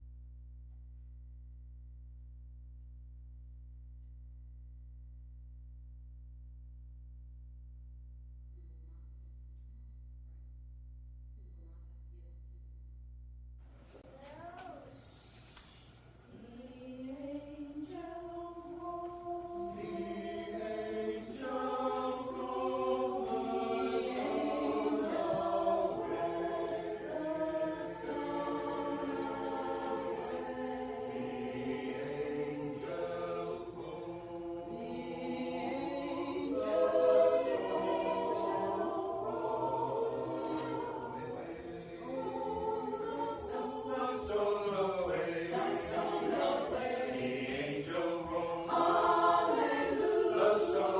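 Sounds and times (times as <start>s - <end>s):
choir singing: 16.3s - 50.9s.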